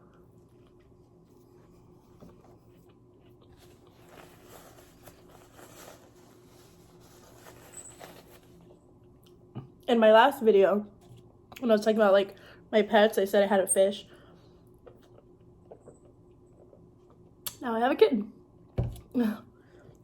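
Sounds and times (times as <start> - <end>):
low room hum: 0.0 - 20.0
faint chewing: 0.1 - 4.1.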